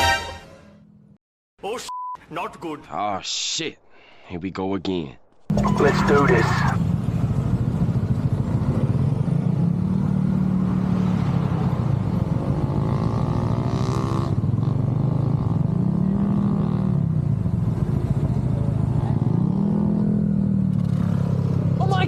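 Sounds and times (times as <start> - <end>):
motorcycle engine revving: 5.6 - 22.0.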